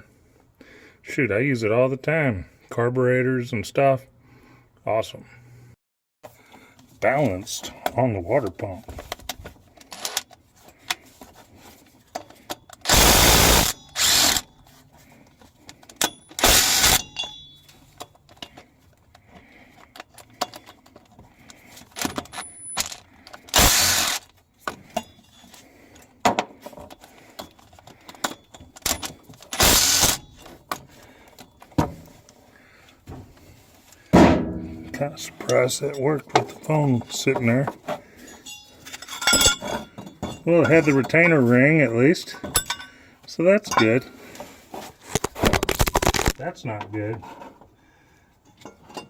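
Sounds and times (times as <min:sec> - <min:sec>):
metal tool clatter and clicks: 0:15.2 - 0:19.2, 0:19.8 - 0:26.1, 0:26.7 - 0:31.8, 0:38.2 - 0:41.4, 0:42.4 - 0:43.0, 0:48.4 - 0:49.0.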